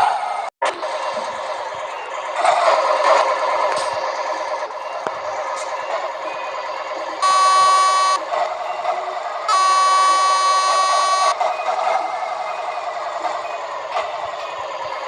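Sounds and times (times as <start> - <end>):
truck engine running: 0.6 - 15.0
truck horn blasts: 7.2 - 8.2, 9.5 - 11.4.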